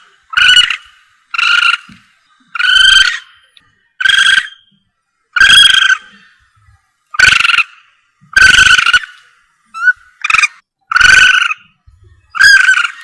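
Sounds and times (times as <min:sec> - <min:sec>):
harsh buzzy animal call: 0:09.8 - 0:13.0.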